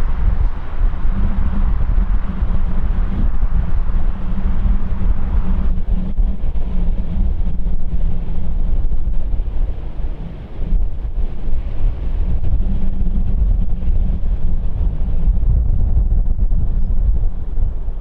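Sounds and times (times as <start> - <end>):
jet engine rumble: 0.0 - 18.0
wind buffeting microphone: 0.0 - 18.0.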